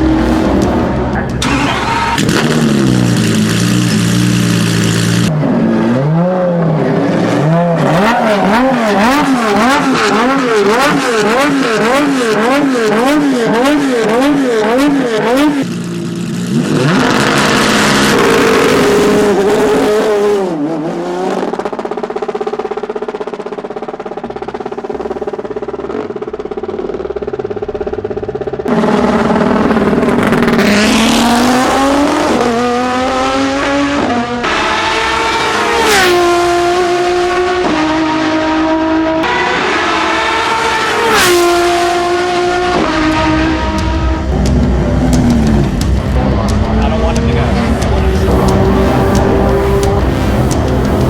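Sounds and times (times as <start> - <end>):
car engine idling: 0.0 - 5.3, 21.7 - 32.9, 39.6 - 51.0
car engine revving: 0.0 - 51.0.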